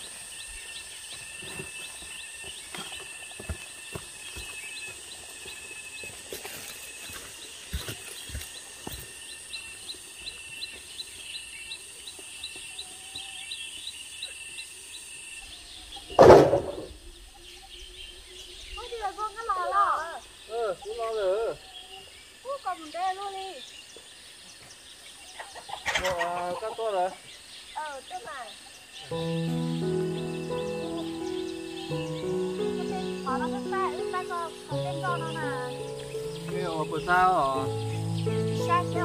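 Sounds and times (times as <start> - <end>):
birds chirping: 0.0 - 39.0
steps on dry brush: 1.0 - 9.4, 29.1 - 39.0
loud thump: 16.2 - 17.0.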